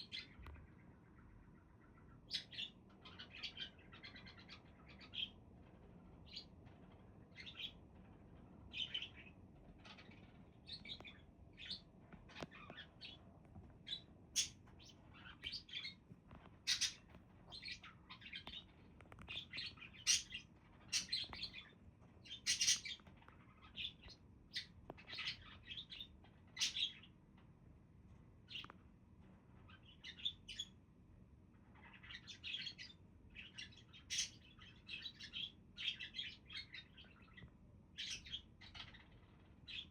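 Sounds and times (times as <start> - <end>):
budgerigars chirping: 2.2 - 5.4, 13.9 - 16.0, 16.7 - 18.7, 19.3 - 21.7, 22.3 - 23.0, 23.6 - 27.1, 31.8 - 37.4.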